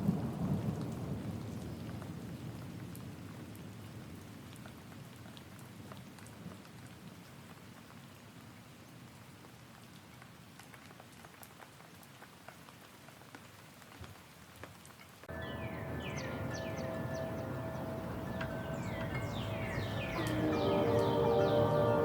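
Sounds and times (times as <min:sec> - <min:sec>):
rain drops ticking: 0:00.0 - 0:22.0
steady tones: 0:15.3 - 0:22.0.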